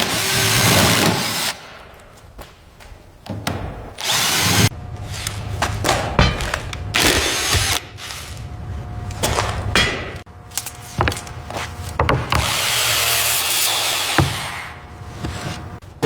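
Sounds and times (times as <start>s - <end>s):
power tool running: 6.9s - 8.4s.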